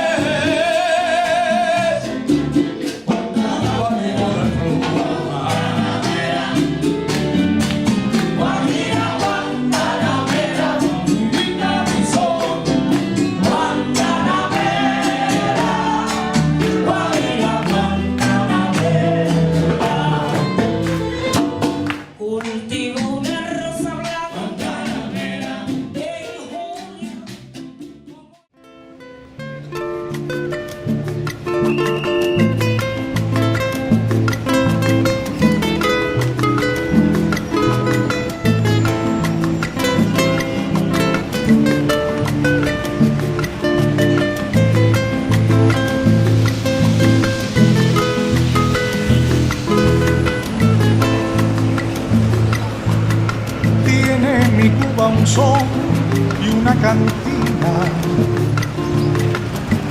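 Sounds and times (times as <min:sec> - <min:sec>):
person singing: 0:00.0 - 0:02.4, 0:03.0 - 0:07.1, 0:08.4 - 0:27.5, 0:53.6 - 0:58.6
guitar: 0:00.0 - 0:59.9
percussion: 0:00.0 - 0:59.9
plucked string tune: 0:00.0 - 0:59.9.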